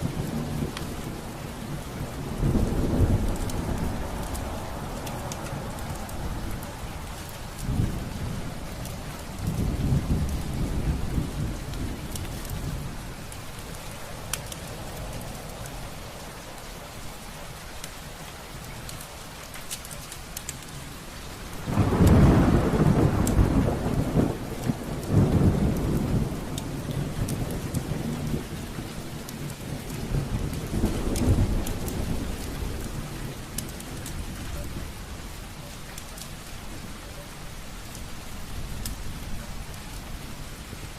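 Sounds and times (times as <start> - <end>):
thunder rumbling: 0.0 - 16.0, 21.5 - 36.9
fire crackling: 0.0 - 40.9
steady rain: 0.0 - 40.9.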